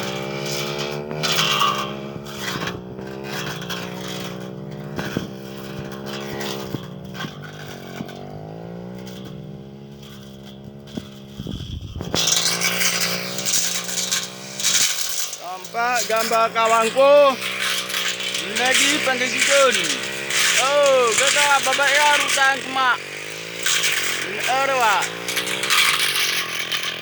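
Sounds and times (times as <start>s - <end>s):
brush cutter engine running: 0.0s - 27.0s
loud rustling: 10.0s - 27.0s.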